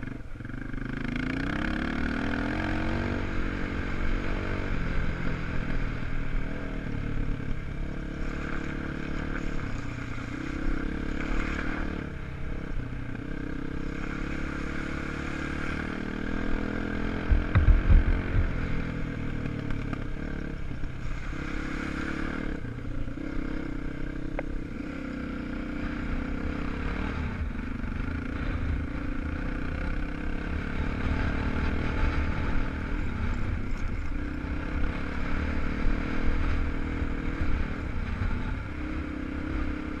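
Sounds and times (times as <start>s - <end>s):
motorcycle engine revving: 0.0s - 40.0s
heavy low thumps: 17.2s - 18.8s.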